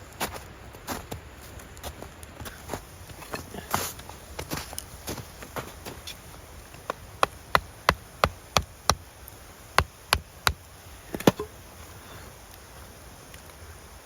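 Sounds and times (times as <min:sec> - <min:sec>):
sharp knocks: 0:07.2 - 0:09.1.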